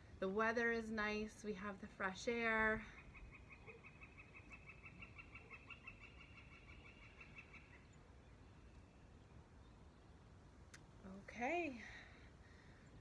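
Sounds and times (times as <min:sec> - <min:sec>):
faint bird call: 0:02.8 - 0:09.0.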